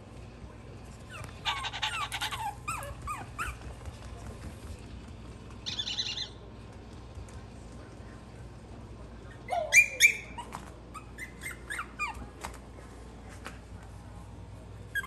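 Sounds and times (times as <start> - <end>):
puppies yelping and whimpering: 1.1 - 3.6, 9.5 - 12.2.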